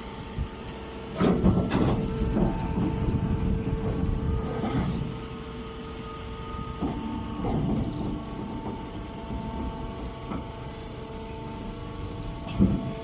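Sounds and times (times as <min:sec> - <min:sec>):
hay baler machine hum: 0:00.0 - 0:13.0
machine knocks: 0:12.5 - 0:13.0.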